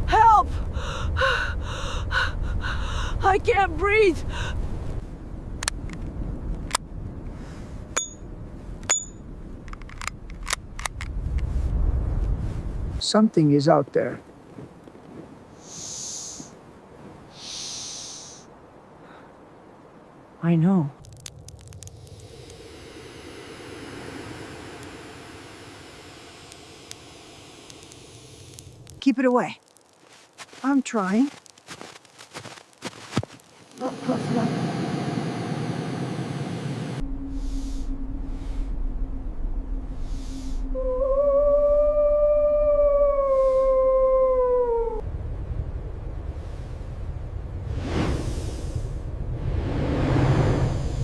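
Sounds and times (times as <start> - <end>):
low steady rumble: 0.0 - 13.0, 20.9 - 29.6, 33.7 - 51.0
blizzard wind rushing: 0.0 - 51.0
faint clicks: 21.0 - 22.6, 27.6 - 30.1.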